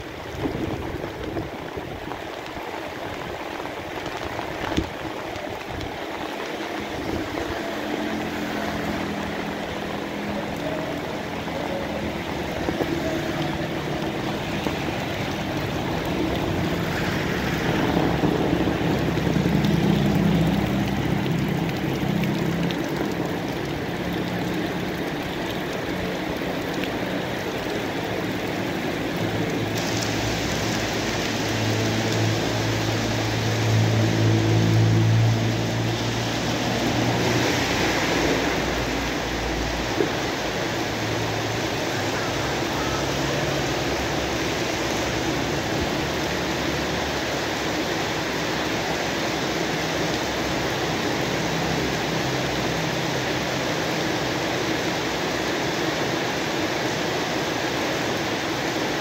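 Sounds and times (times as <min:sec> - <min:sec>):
steady rain falling: 0:00.0 - 0:59.0
low engine hum: 0:05.6 - 0:47.8.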